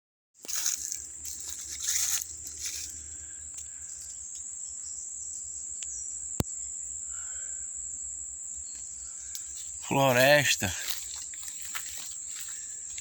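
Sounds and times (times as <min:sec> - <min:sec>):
high-pitched insect drone: 0:00.4 - 0:13.0
rustling: 0:00.5 - 0:03.0.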